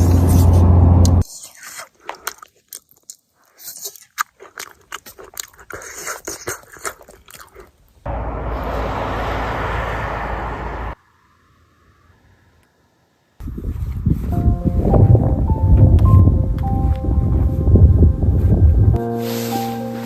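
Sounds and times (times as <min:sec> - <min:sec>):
crunchy chewing: 0:00.0 - 0:08.1.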